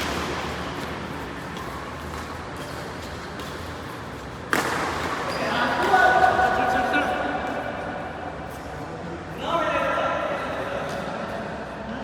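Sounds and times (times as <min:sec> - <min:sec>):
racket striking shuttlecock: 0:00.0 - 0:05.2
steady background hum: 0:00.0 - 0:12.0.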